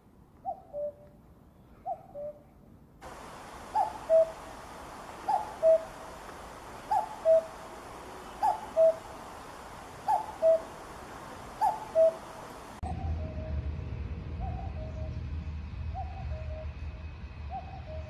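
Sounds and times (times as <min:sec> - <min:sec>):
cuckoo calling: 0:00.4 - 0:01.0, 0:03.1 - 0:13.3
steady background hiss: 0:02.7 - 0:12.9.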